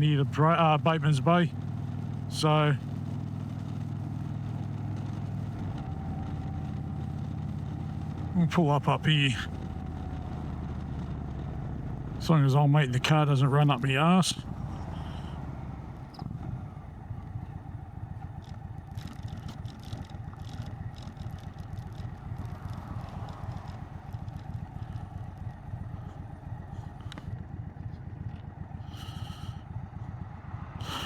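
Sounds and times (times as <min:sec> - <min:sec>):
motorcycle engine idling: 0:00.0 - 0:31.0
rustling and clicking handling noises: 0:18.2 - 0:25.0.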